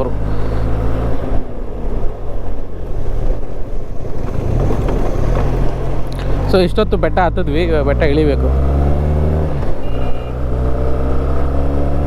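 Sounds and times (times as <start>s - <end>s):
wind rushing over microphone: 0.2s - 6.9s.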